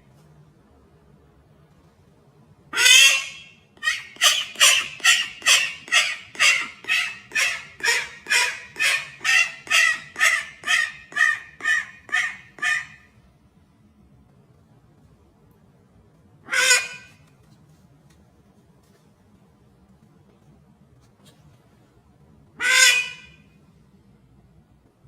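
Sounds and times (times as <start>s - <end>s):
bird calling: 2.8s - 13.0s, 16.5s - 17.2s, 22.6s - 23.4s.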